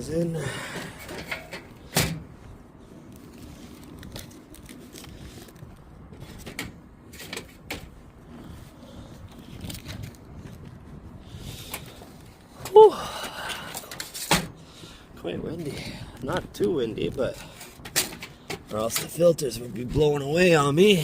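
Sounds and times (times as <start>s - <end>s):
wind rumble on microphone: 0.0s - 18.8s
light clicks and scrapes: 2.8s - 12.5s.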